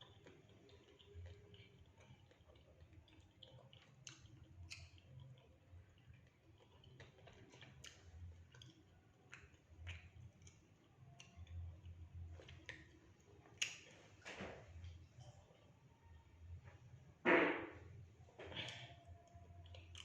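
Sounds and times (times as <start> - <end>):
mouth clicks of eating: 0.0 - 13.0, 13.6 - 13.9, 18.6 - 20.0.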